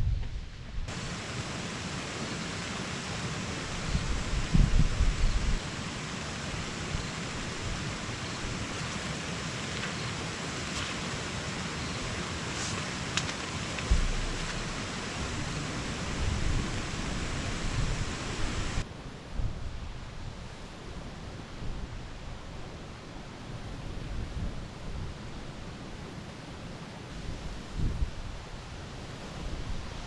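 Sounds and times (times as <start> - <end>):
rain hissing: 0.0 - 18.9
wind rumbling on microphone: 0.0 - 30.0.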